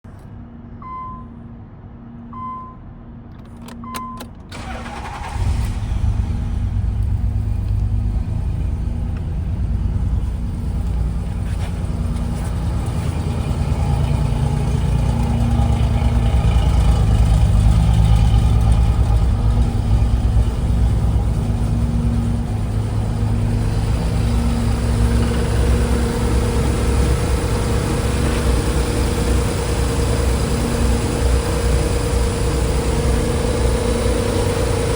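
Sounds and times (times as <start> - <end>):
starter motor cranking: 4.5 - 6.3
car engine idling: 4.5 - 34.9.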